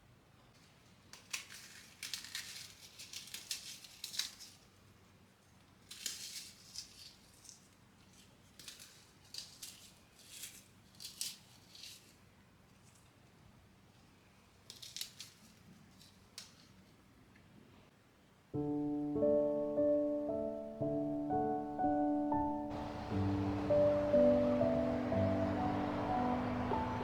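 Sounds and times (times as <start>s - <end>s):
faint rustling and scraping: 0.4s - 17.9s.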